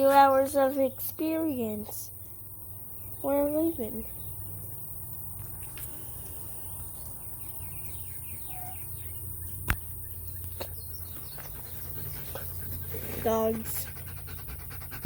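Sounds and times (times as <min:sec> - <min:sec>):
faint bird chirps: 0:05.6 - 0:13.5.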